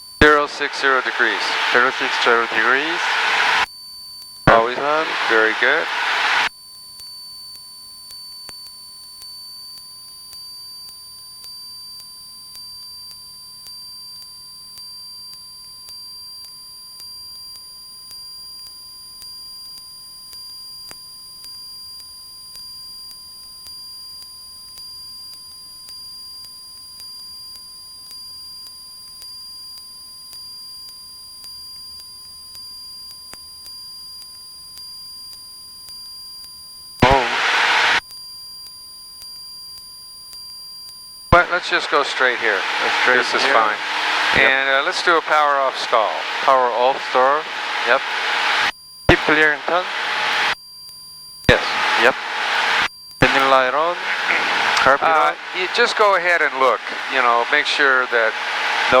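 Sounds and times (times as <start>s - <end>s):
faint hiss: 0.2s - 3.6s, 4.5s - 6.5s, 41.4s - 50.6s, 51.5s - 59.0s
steady electronic tone: 0.2s - 3.6s, 4.5s - 6.5s, 37.0s - 38.0s, 41.4s - 50.6s, 51.5s - 59.0s
high-pitched electronic whines: 0.2s - 3.7s, 4.5s - 6.5s, 37.0s - 38.0s, 41.4s - 50.6s, 51.5s - 59.0s.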